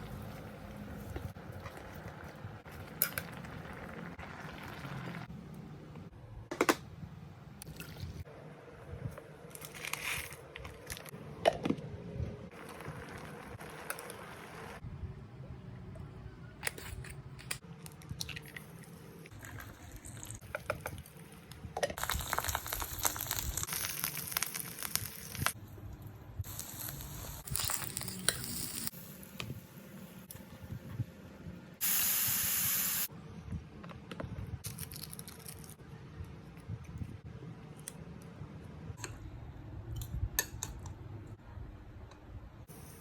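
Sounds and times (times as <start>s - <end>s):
sizzling: 0.0s - 5.3s, 12.5s - 14.8s, 22.0s - 25.6s, 26.4s - 30.3s, 31.8s - 33.1s
packet crinkling and tearing: 22.0s - 25.5s.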